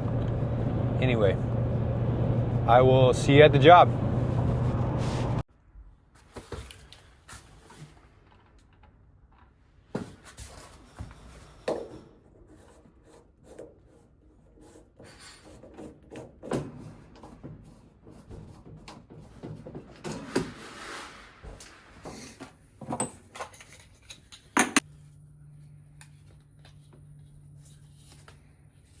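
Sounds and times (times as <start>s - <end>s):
objects knocking and clunking: 15.0s - 20.6s, 21.4s - 24.9s.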